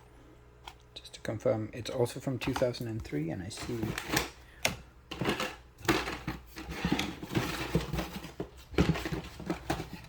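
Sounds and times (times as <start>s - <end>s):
plastic packaging rustling: 5.1s - 10.0s.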